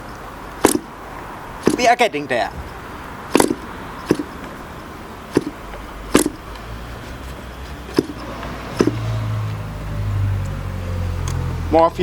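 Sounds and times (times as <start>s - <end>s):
model engine pops: 0.6s - 1.0s, 1.6s - 1.9s, 3.3s - 4.4s, 5.3s - 6.6s, 7.9s - 9.1s.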